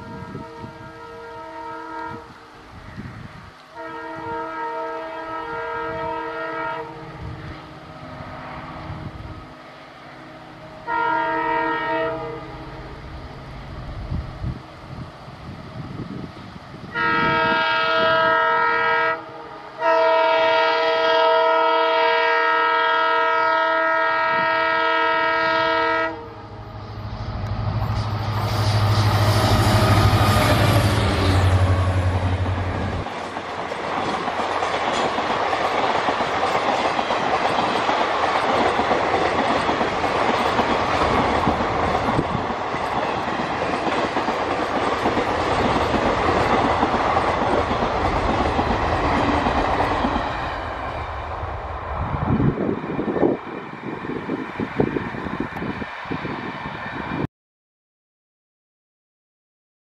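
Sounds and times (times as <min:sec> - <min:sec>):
locomotive air horn blast: 0:00.0 - 0:02.4, 0:03.7 - 0:07.4, 0:10.8 - 0:13.0, 0:16.9 - 0:26.8, 0:27.8 - 0:33.0
train wheels clattering on rails: 0:32.1 - 0:51.2.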